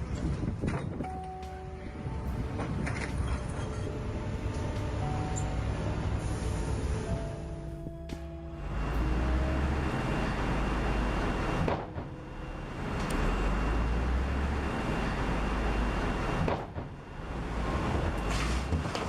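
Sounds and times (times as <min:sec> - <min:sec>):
heavy machinery engine rumble: 0:00.0 - 0:19.0.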